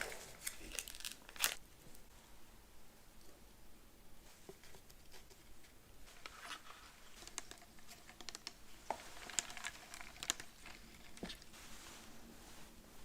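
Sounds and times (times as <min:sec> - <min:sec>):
crisp eating crackles: 0:06.3 - 0:11.5.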